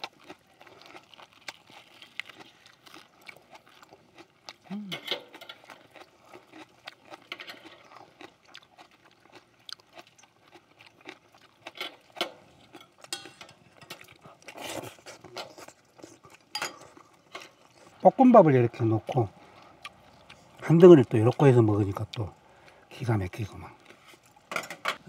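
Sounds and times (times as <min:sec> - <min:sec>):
people chewing and crunching food: 0:00.0 - 0:25.0
utensils clicking on metal griddle: 0:11.8 - 0:14.0.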